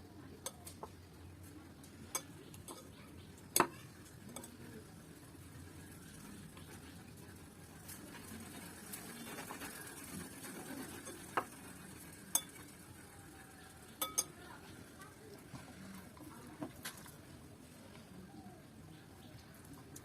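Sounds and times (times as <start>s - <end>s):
soft eating and mixing noise: 0.0s - 20.0s
dishware clinking: 14.0s - 14.4s.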